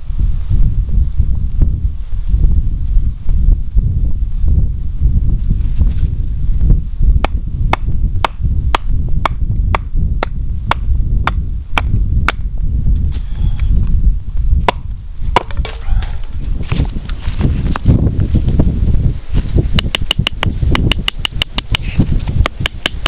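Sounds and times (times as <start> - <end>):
steady low rumble: 0.0 - 23.0
hatchet splitting log: 7.2 - 12.5, 14.6 - 15.9, 19.6 - 23.0.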